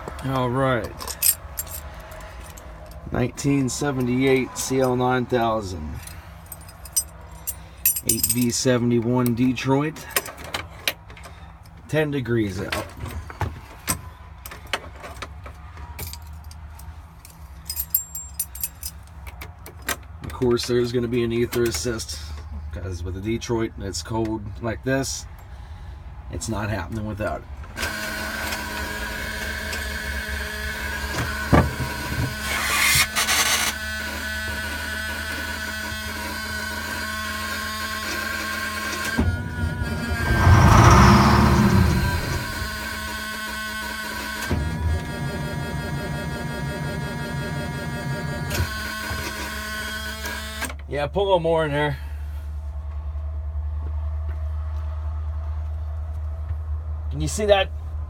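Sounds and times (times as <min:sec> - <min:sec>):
metallic jingle: 0:06.5 - 0:08.5, 0:17.6 - 0:19.0
steady low rumble: 0:39.3 - 0:42.8.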